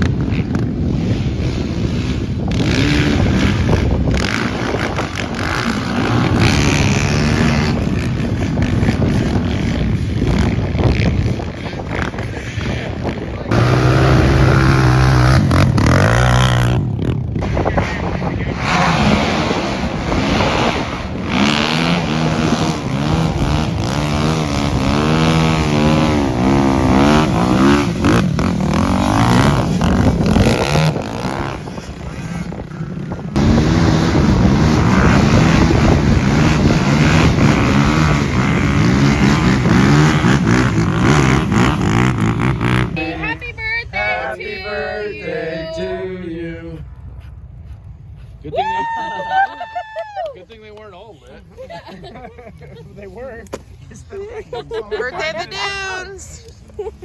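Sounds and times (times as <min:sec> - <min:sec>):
off-road vehicle engine revving: 0:00.0 - 0:11.1, 0:13.5 - 0:43.4
rushing noise: 0:17.4 - 0:43.0.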